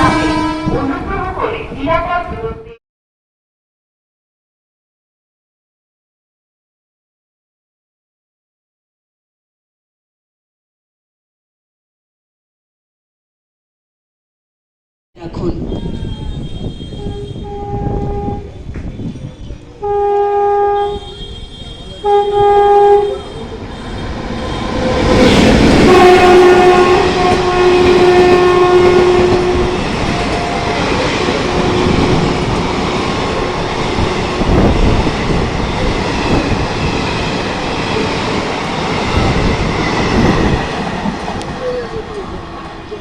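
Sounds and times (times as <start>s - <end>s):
locomotive horn blasts: 0.0s - 1.2s, 16.0s - 18.6s, 19.8s - 35.0s
train rushing past: 0.0s - 2.8s, 15.2s - 43.0s.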